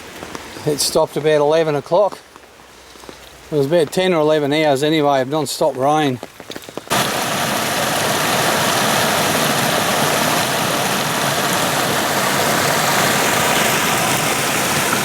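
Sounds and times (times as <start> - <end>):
creek water rushing: 6.9 - 15.0.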